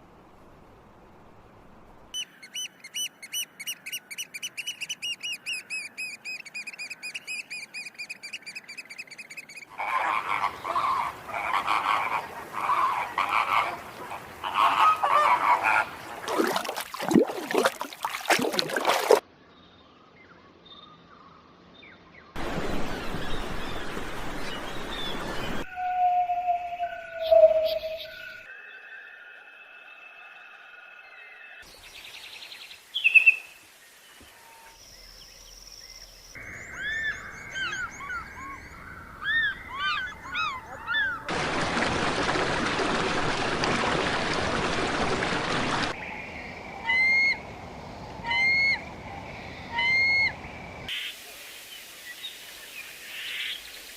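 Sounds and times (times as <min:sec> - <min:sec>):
harsh goose-like bird calls: 0:02.2 - 0:16.1
high whistled bird notes: 0:25.6 - 0:28.5.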